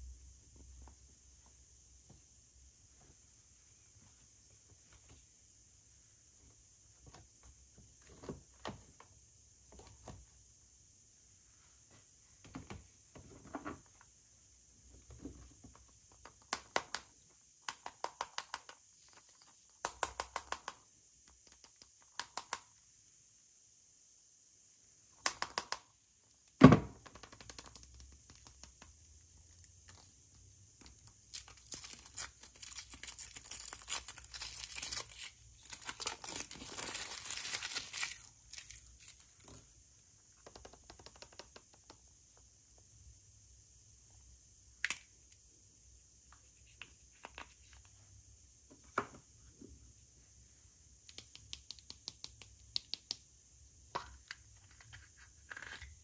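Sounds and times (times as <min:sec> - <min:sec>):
packaging wrapper tearing and crinkling: 0:31.2 - 0:39.2.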